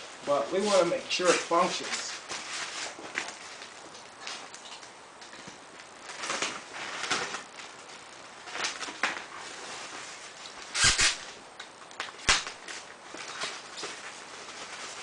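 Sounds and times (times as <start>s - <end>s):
scuffs and rustles of handling: 0.0s - 4.8s, 12.7s - 15.0s.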